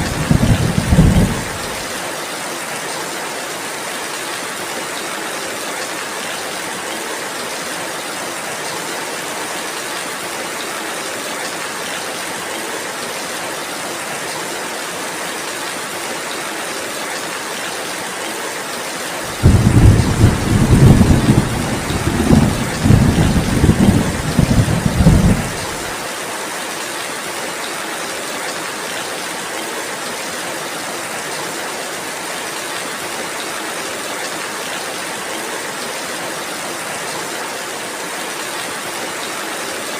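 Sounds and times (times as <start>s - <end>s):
deep rumble of thunder: 0.0s - 1.8s, 19.3s - 25.9s
steady rainfall: 0.0s - 39.9s.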